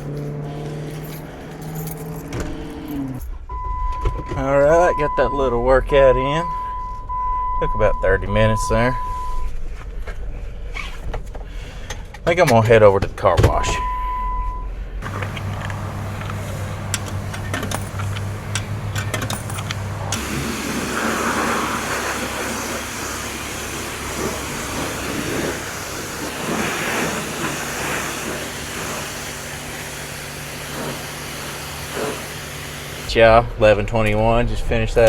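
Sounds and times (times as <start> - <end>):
car engine running: 0.0 - 35.0
hiss of water spray: 20.2 - 33.1.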